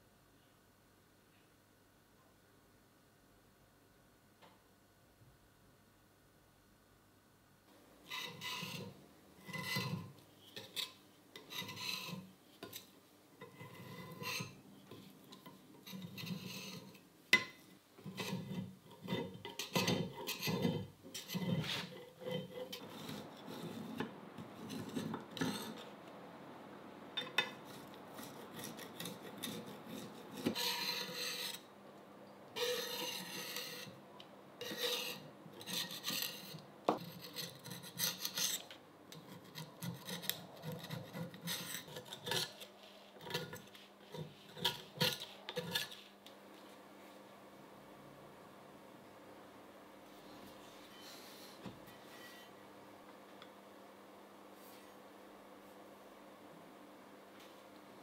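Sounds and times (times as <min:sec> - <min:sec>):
rasping scraping on a surface: 0:08.1 - 0:17.0, 0:18.0 - 0:25.9, 0:27.4 - 0:31.7, 0:32.6 - 0:34.0, 0:34.6 - 0:46.1.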